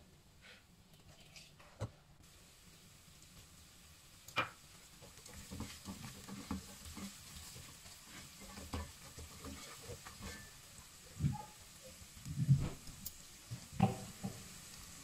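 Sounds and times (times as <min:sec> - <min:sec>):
onions sizzling in oil: 0:02.2 - 0:15.0
spatula scraping pot: 0:05.1 - 0:10.6.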